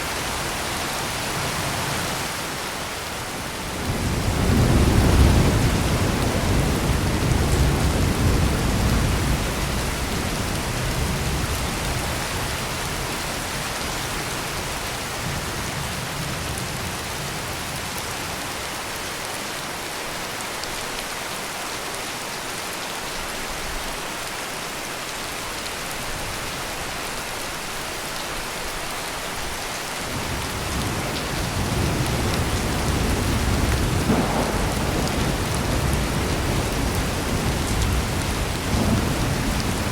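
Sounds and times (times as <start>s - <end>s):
heavy rain pouring: 0.0s - 39.9s
thunder rumbling: 3.6s - 13.2s, 30.1s - 39.9s.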